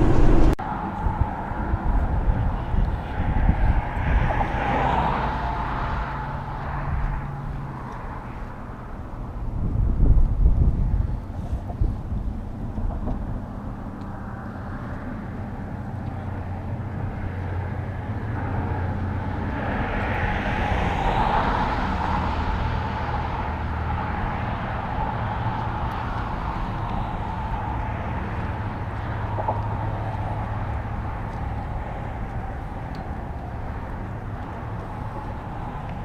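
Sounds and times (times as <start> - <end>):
rushing sound: 0.0 - 1.4
low rumble: 0.0 - 3.0
wind buffeting microphone: 0.0 - 5.2, 9.2 - 36.0.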